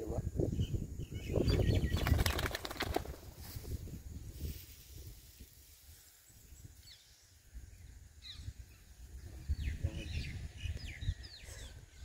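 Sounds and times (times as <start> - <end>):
wind rumble on microphone: 0.0 - 12.0
birds calling: 0.5 - 3.2, 6.0 - 12.0.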